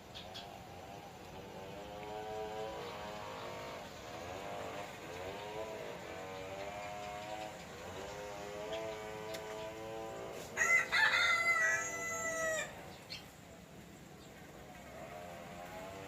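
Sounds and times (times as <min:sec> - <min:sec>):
rooster crowing: 0:10.4 - 0:12.9.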